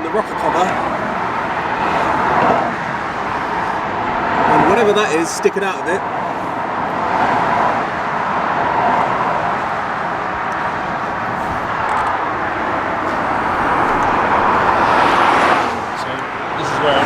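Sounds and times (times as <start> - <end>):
motorway traffic rushing past: 0.0 - 17.0
tyre and wind noise: 6.5 - 16.6.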